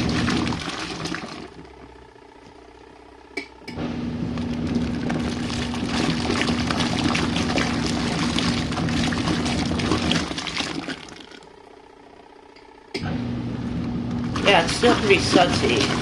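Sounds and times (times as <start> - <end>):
water churning in tub: 0.0 - 2.0, 3.8 - 11.8, 14.2 - 16.0
washing machine motor hum: 0.0 - 16.0.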